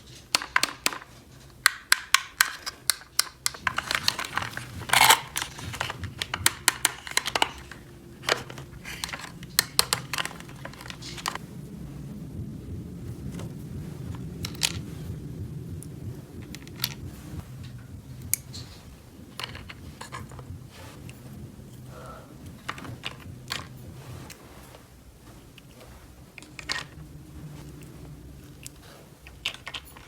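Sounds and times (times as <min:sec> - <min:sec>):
plastic toy pieces clicking: 0:00.3 - 0:11.4
low steady hum: 0:01.2 - 0:30.0.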